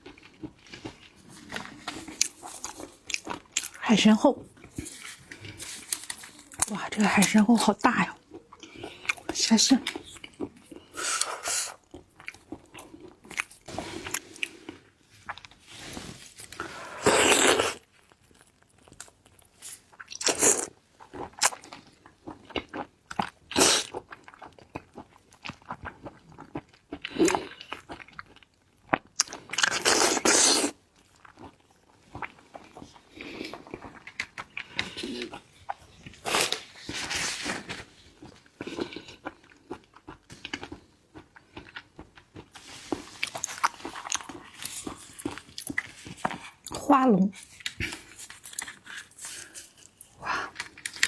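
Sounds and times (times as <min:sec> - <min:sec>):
person chewing crunchy food: 0:00.0 - 0:03.8, 0:08.2 - 0:46.8, 0:47.4 - 0:51.0.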